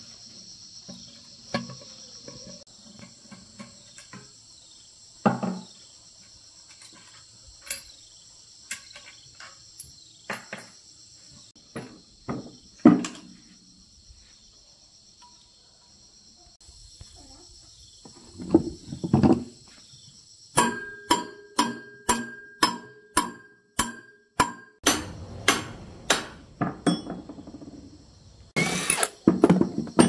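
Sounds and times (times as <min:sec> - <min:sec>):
crickets chirring: 0:00.0 - 0:24.4, 0:25.2 - 0:30.0
hammer striking metal: 0:20.6 - 0:27.2.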